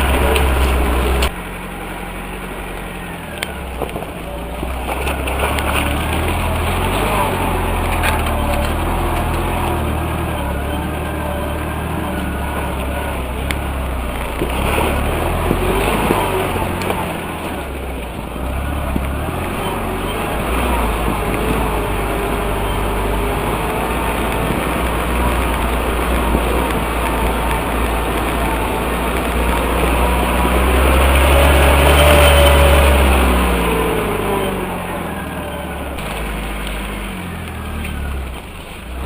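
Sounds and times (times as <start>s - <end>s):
off-road vehicle engine running: 0.0s - 39.0s.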